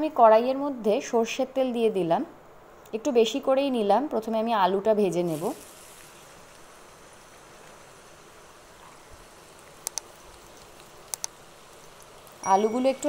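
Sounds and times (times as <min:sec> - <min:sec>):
potatoes sizzling in hot oil: 0:05.0 - 0:13.0.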